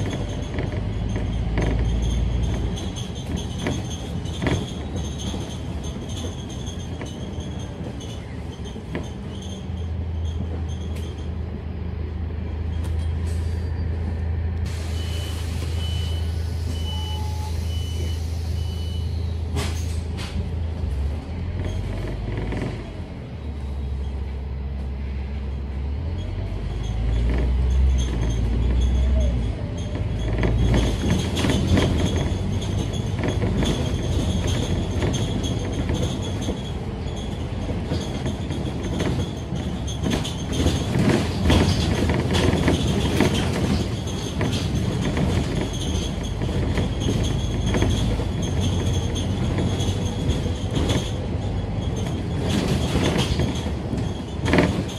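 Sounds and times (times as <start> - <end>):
body rattles and knocks: 0.0 - 11.3, 26.8 - 54.9
bus diesel engine: 0.0 - 54.9.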